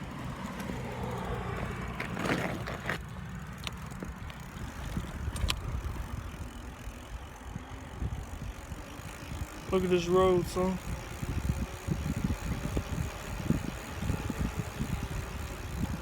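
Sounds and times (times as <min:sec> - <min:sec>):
bike clicks and rattles: 0:00.0 - 0:16.0
wind rumble on microphone: 0:04.1 - 0:16.0.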